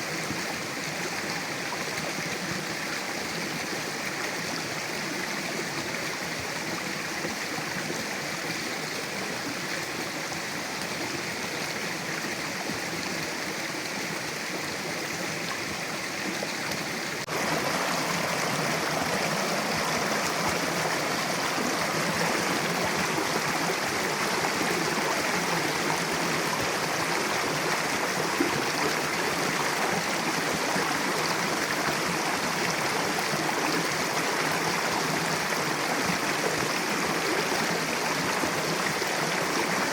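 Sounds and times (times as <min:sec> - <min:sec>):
river rushing over rocks: 0:15.4 - 0:39.9.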